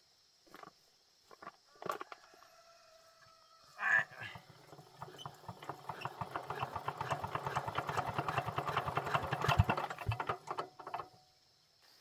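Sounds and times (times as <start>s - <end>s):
small machine knocking rapidly: 4.4s - 11.1s.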